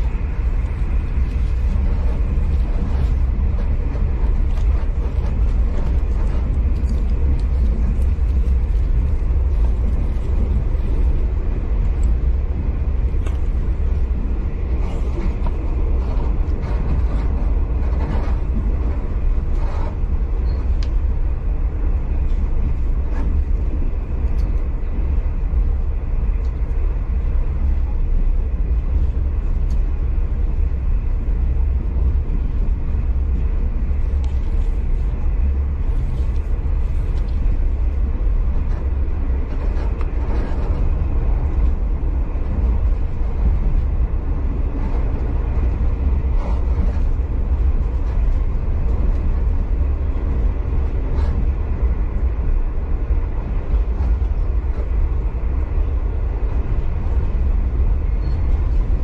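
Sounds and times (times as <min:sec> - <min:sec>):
passenger train rumble: 0:00.0 - 0:59.0
faint ticks and squeaks: 0:19.5 - 0:20.9, 0:58.1 - 0:58.9.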